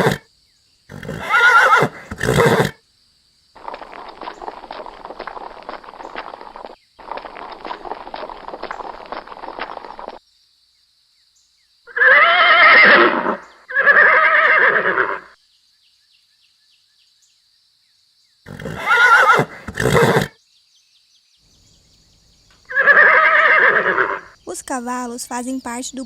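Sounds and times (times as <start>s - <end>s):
horse neighing: 0.0s - 0.2s, 0.9s - 2.8s, 11.9s - 15.3s, 18.5s - 20.3s, 22.7s - 24.4s.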